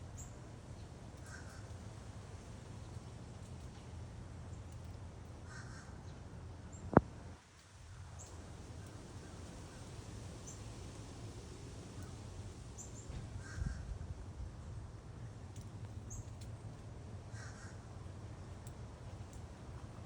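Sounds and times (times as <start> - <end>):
crow cawing: 5.5 - 5.9, 17.3 - 17.9.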